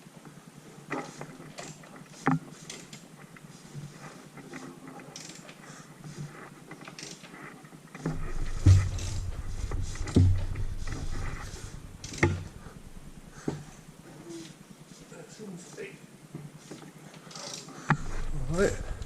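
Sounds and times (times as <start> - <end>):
heavy thumps of engine crank: 8.0 - 13.9, 17.9 - 19.0
low rumble: 8.1 - 13.9, 18.0 - 19.0.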